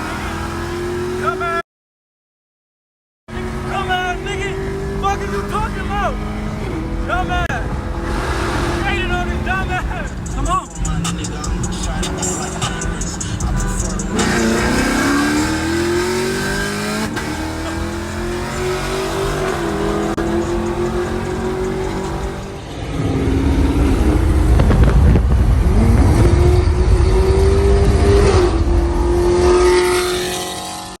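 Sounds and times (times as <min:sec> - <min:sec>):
car engine accelerating: 0:03.3 - 0:31.0
low exhaust rumble: 0:23.1 - 0:28.0.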